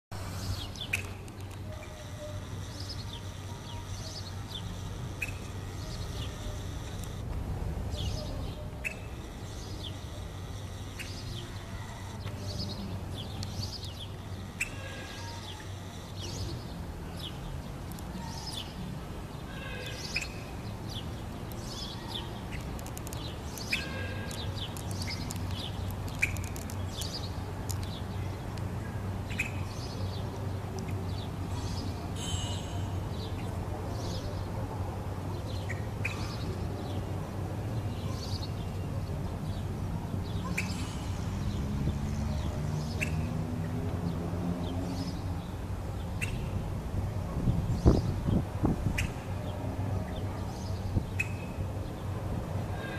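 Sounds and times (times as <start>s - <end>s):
many birds chirping: 0.2s - 7.2s, 7.9s - 34.6s.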